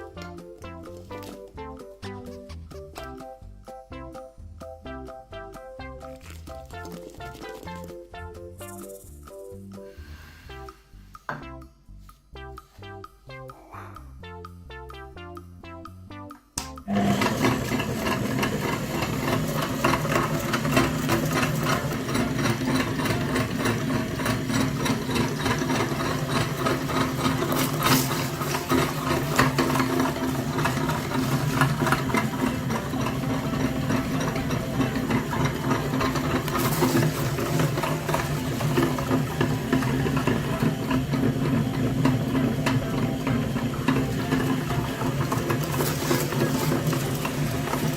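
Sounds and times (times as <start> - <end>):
tractor motor running: 16.9 - 47.9.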